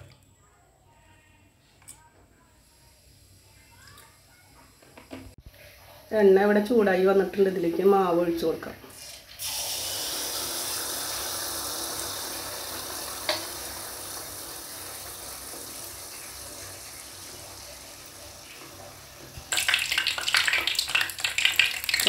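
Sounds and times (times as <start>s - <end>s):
crackling sizzle: 1.8s - 22.0s
batter sizzling in hot oil: 8.9s - 22.0s.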